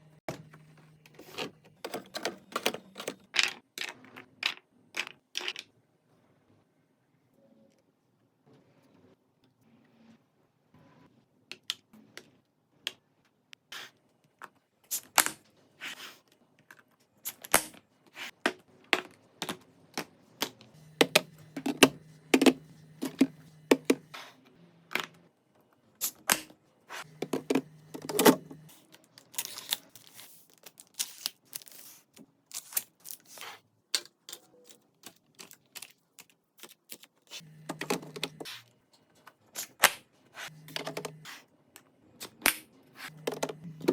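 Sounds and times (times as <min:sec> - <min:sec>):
food containers clicking and knocking: 0:01.1 - 0:05.7, 0:18.5 - 0:24.1, 0:27.2 - 0:28.6, 0:43.2 - 0:43.9.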